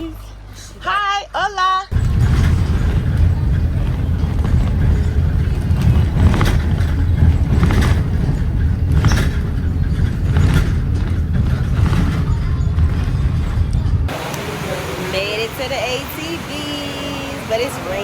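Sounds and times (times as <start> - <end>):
atv engines rumbling: 1.9 - 18.0
short rattles: 2.0 - 13.6.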